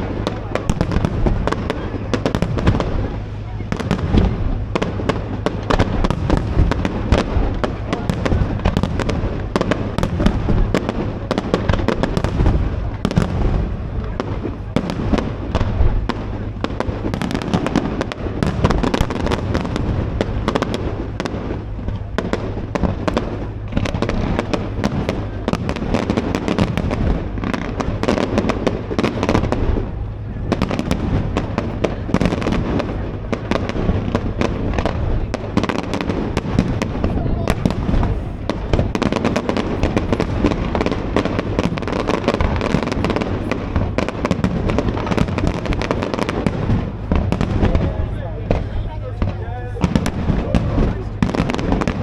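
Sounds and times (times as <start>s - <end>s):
fireworks bangs and crackling: 0.0s - 52.0s
low rumble: 0.0s - 52.0s.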